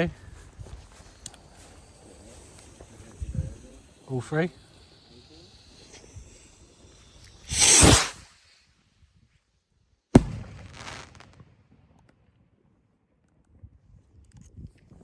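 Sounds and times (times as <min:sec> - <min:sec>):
firework rockets whooshing: 0:00.4 - 0:08.6
firework bang: 0:05.6 - 0:08.2, 0:10.2 - 0:11.4.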